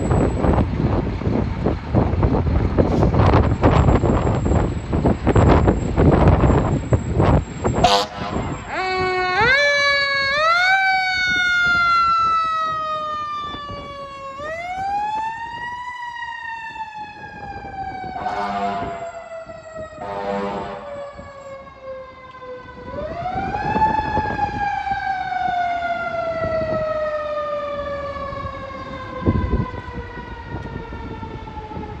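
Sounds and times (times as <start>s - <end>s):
fire engine siren wailing: 0.0s - 32.0s
air horn blasts: 7.8s - 9.1s, 18.2s - 19.2s, 20.0s - 21.1s.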